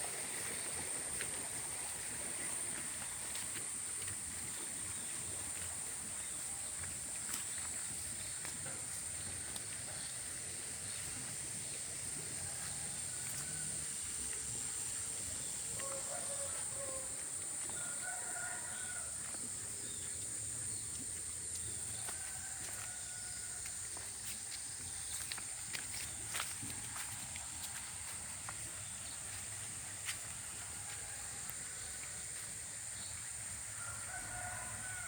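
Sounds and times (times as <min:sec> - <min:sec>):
rooster crowing faintly: 0:15.8 - 0:19.4.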